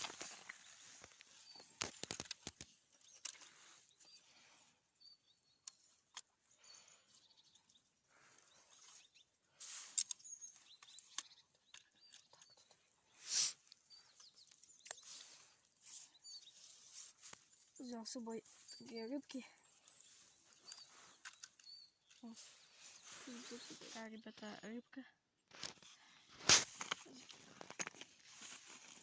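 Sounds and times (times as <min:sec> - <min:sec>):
clicks and rustles: 0:00.0 - 0:04.2, 0:09.6 - 0:17.8, 0:20.0 - 0:23.9, 0:25.4 - 0:29.0
bird chirps: 0:00.0 - 0:24.8.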